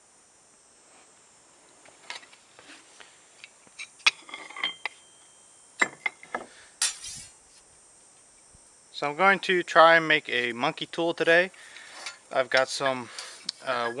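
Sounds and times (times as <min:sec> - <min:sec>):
metal tools clinking: 0:04.2 - 0:05.0.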